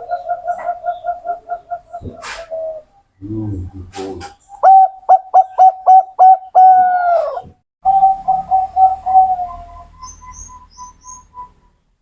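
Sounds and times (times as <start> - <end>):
dove cooing: 0.0 - 4.0, 4.6 - 9.9.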